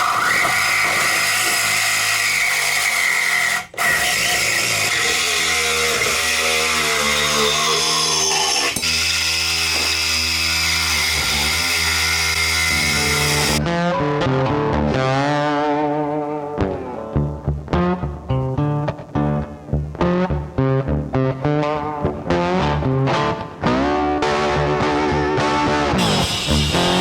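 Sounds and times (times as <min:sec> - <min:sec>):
angle grinder cutting steel: 0:00.0 - 0:13.6, 0:26.0 - 0:27.0.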